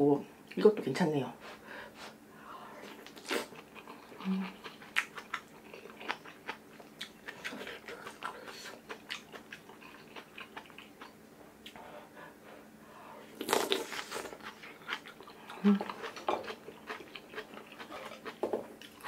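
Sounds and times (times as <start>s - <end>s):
close chewing with wet smacks: 2.9s - 11.8s, 13.4s - 19.0s.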